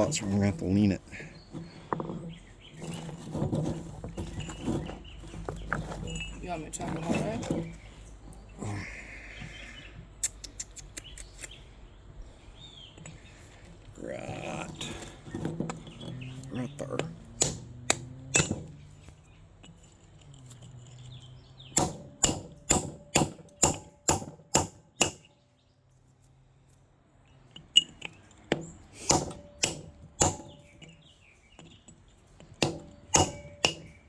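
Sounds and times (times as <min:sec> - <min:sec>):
metal tool striking quartz: 0:17.4 - 0:18.8, 0:21.7 - 0:25.3, 0:27.7 - 0:31.0, 0:32.6 - 0:34.0.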